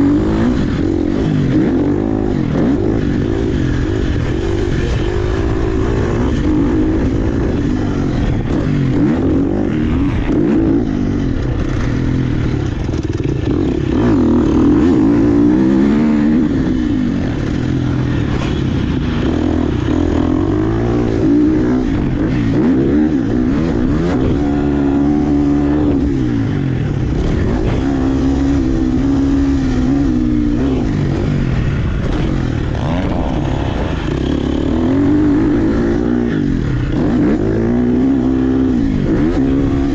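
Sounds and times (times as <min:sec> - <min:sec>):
dirt bike engine revving: 0:00.0 - 0:39.9
bike rattling: 0:09.8 - 0:16.3.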